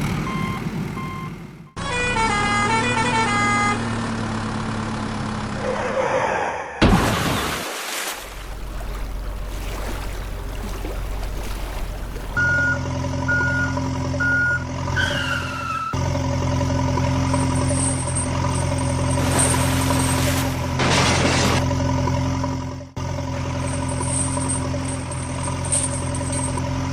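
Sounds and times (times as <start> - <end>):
truck engine idling: 0.0 - 5.9, 8.3 - 26.9
reversing beeps: 0.2 - 1.4, 12.4 - 15.9.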